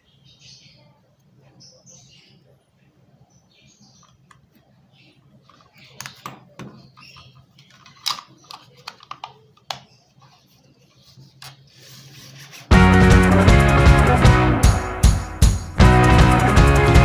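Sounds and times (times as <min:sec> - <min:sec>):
loud rock music: 0:12.7 - 0:17.0.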